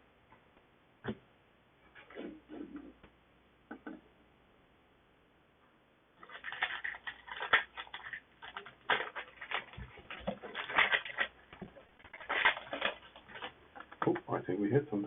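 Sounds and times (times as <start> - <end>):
foil wrapper crinkling and tearing: 6.2 - 14.1.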